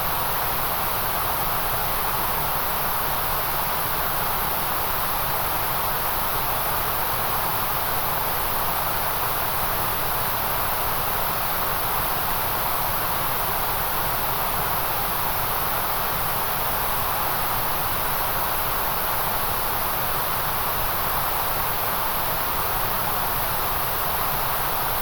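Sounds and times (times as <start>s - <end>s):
white noise hiss: 0.0s - 25.0s.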